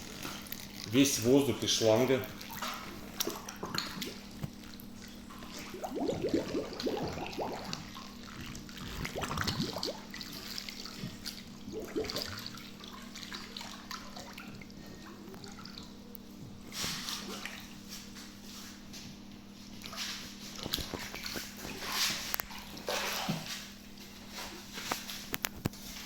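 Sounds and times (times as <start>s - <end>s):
faint steady hum: 0.0s - 26.0s
water gurgling and bubbling: 0.1s - 16.0s.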